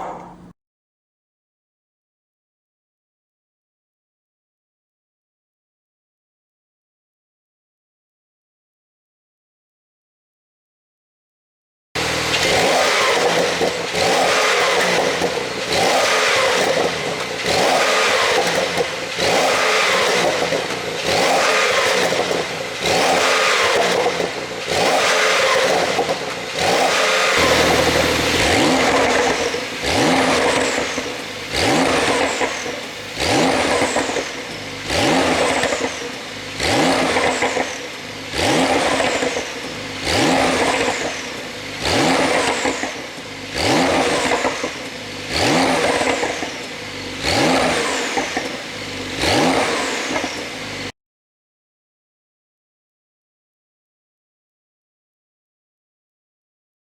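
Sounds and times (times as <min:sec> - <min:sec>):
car engine revving in blips: 0:12.0 - 0:50.9
exhaust pops: 0:27.4 - 0:36.0.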